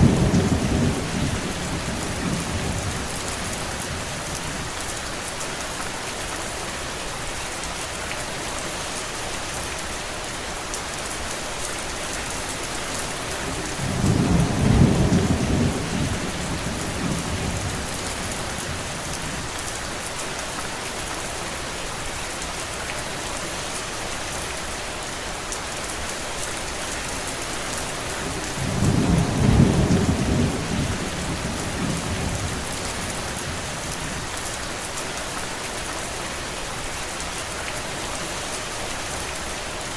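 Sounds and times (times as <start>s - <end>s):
distant thunder rumbling: 0.0s - 3.5s, 13.7s - 18.9s, 28.2s - 34.0s.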